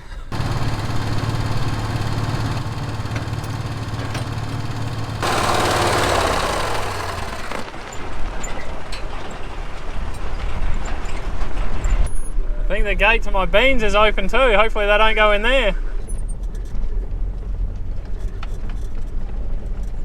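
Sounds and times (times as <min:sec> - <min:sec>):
vehicle engine running: 0:00.3 - 0:07.7
knocks and rattles: 0:00.3 - 0:07.8.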